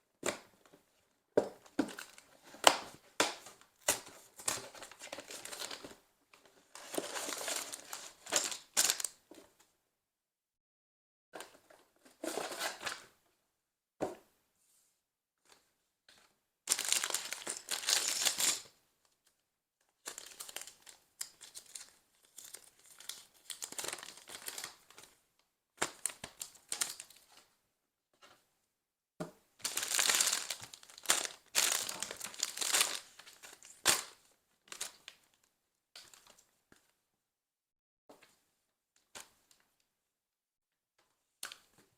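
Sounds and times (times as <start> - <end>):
plastic bags crinkling: 16.7 - 18.6, 20.1 - 24.8, 29.6 - 35.0.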